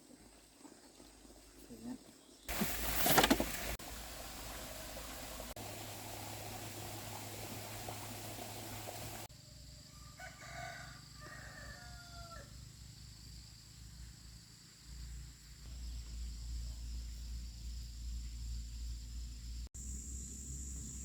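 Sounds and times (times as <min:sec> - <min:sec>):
steady hiss: 0:02.5 - 0:09.3
rooster crowing: 0:09.9 - 0:12.6.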